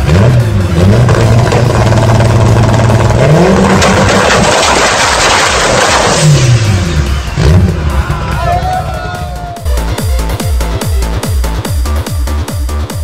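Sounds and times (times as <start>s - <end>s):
car engine revving: 0.0s - 8.4s
crackling exhaust blast: 1.0s - 8.0s.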